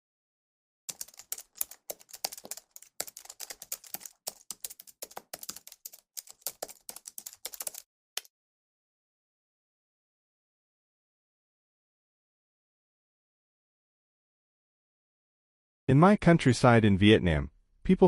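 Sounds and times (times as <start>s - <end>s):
keyboard typing: 0.9s - 8.3s.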